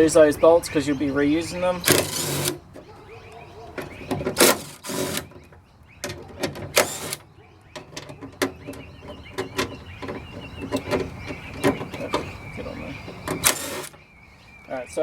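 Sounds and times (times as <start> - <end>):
hand tools clicking and knocking: 1.8 - 12.4, 13.0 - 14.0
metal parts rasping scrapes: 1.9 - 2.6, 4.2 - 5.3, 6.7 - 7.2, 13.4 - 14.0.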